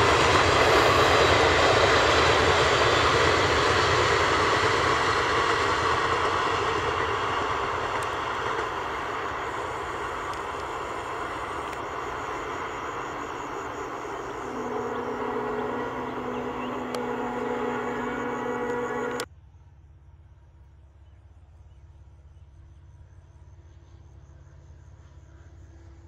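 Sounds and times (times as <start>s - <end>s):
train wheels rumbling on rails: 0.0s - 19.3s
low steady tone: 9.3s - 19.2s.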